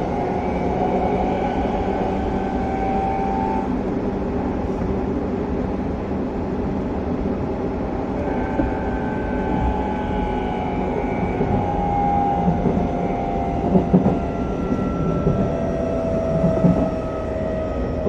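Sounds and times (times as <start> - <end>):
electric motor inverter whine: 0.0 - 4.0, 8.0 - 18.0
train wheels rumbling on rails: 0.0 - 18.0.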